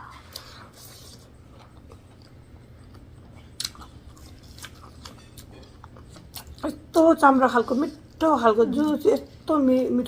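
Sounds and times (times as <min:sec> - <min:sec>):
person chewing food: 0:00.0 - 0:07.0
steady low hum: 0:00.0 - 0:10.0.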